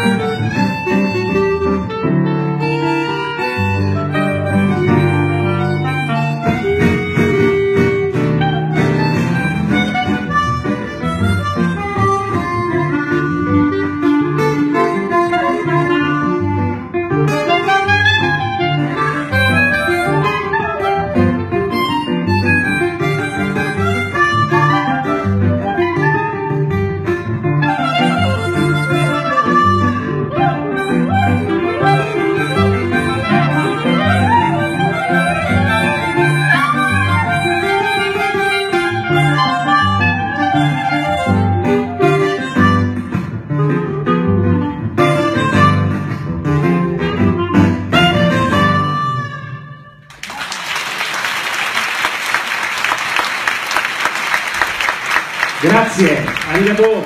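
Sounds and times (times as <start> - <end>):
sliding melody: 0.0 - 50.1
live band music: 0.0 - 50.4, 52.7 - 57.0
audience applause: 50.1 - 57.0.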